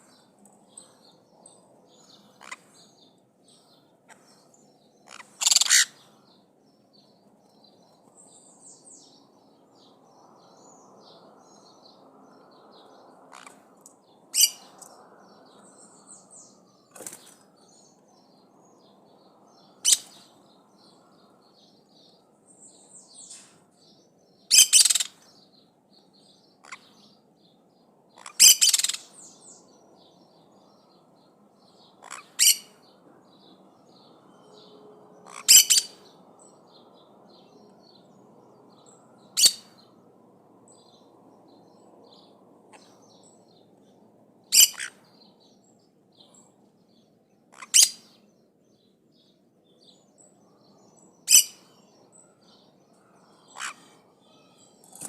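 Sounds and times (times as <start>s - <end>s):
faint bird twittering: 0.0s - 40.0s, 40.6s - 55.0s
parrots giving harsh calls: 5.0s - 6.0s, 14.4s - 14.7s, 24.5s - 25.2s, 28.2s - 29.1s, 32.0s - 32.7s, 35.2s - 36.0s, 44.5s - 45.0s, 47.5s - 48.1s, 51.3s - 51.6s, 53.4s - 53.9s.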